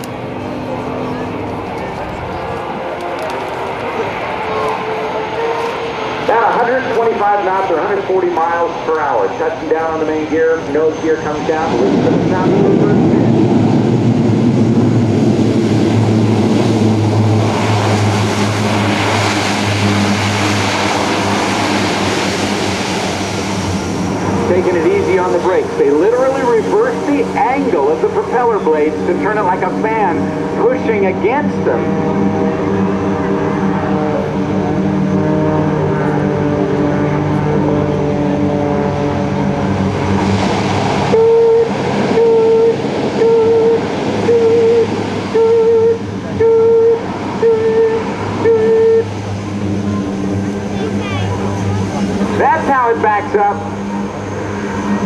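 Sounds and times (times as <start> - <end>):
broad rushing noise: 0.0 - 55.0
propeller drone: 0.0 - 55.0
loud horn-like tone: 41.1 - 51.9.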